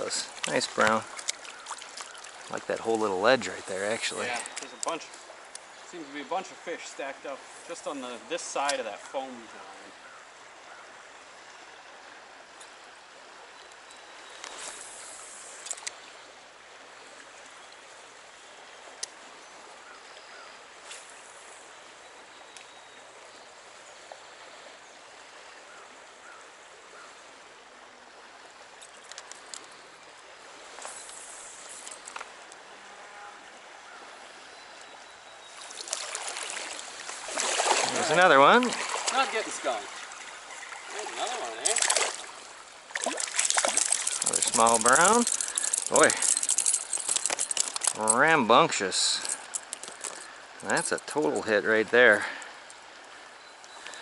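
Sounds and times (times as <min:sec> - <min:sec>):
stream flowing: 0:00.0 - 0:54.0
short sharp splashes: 0:35.6 - 0:48.0.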